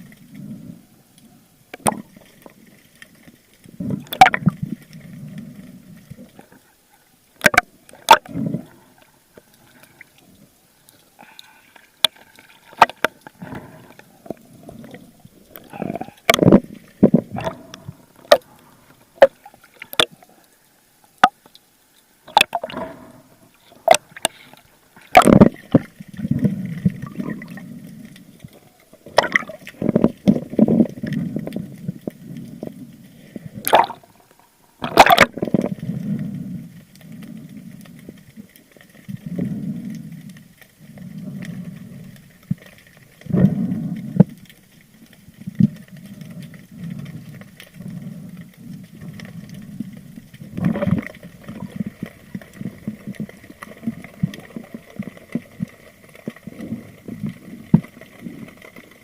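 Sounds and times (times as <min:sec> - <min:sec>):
water gurgling underwater: 0:01.7 - 0:02.6, 0:03.7 - 0:06.5, 0:07.4 - 0:09.0, 0:12.6 - 0:20.2, 0:22.2 - 0:40.1, 0:45.3 - 0:59.0.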